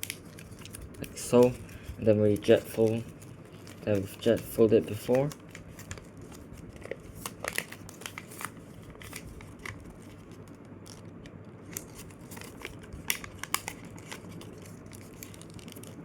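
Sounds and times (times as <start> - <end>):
paper crinkling while folded: 0.0 - 16.0.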